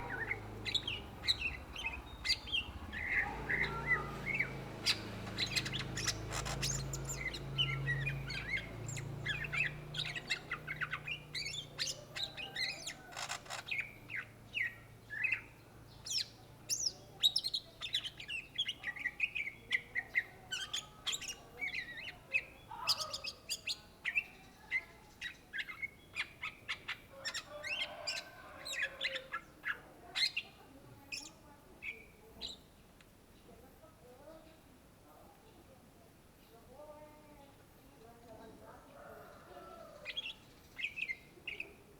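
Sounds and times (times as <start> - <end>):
bird singing chirps and whistles: 0.0 - 12.9.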